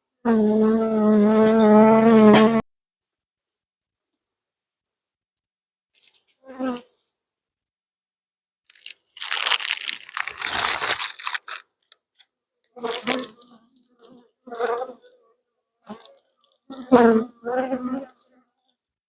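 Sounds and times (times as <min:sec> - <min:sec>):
paper tearing and crinkling: 0:08.7 - 0:12.0, 0:12.8 - 0:13.3.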